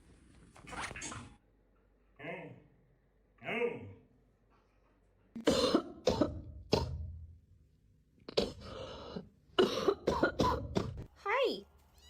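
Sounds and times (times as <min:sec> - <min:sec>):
person coughing: 0:05.4 - 0:07.0, 0:09.6 - 0:11.0.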